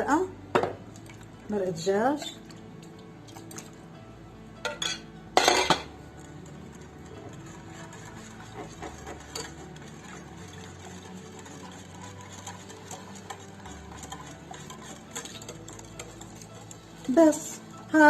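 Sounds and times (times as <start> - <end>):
spoon stirring thick sauce: 5.8 - 18.0.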